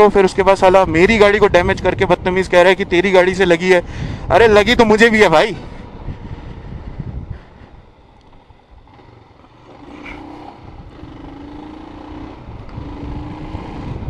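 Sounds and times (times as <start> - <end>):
wind rumble on microphone: 0.0 - 14.0
motorcycle engine accelerating: 5.8 - 14.0.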